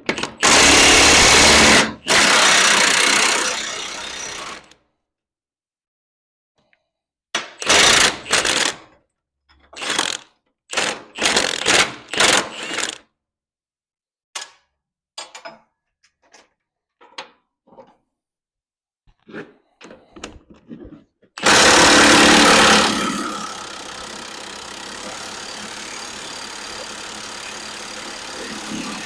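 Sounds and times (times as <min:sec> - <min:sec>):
impact wrench bursts: 0:00.2 - 0:04.6, 0:07.6 - 0:08.8, 0:09.8 - 0:10.2, 0:21.4 - 0:29.0.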